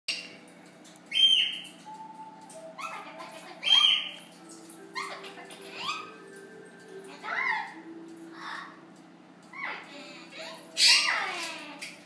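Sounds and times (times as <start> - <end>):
parrot squawking: 1.1 - 6.4, 7.0 - 8.8, 9.5 - 12.0.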